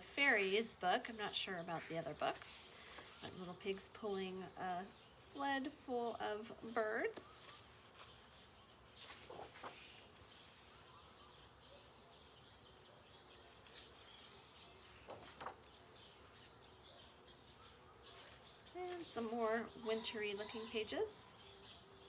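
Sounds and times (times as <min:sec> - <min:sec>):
paper pages turning: 0:06.5 - 0:08.4, 0:09.0 - 0:11.0, 0:13.3 - 0:16.5, 0:17.6 - 0:19.4.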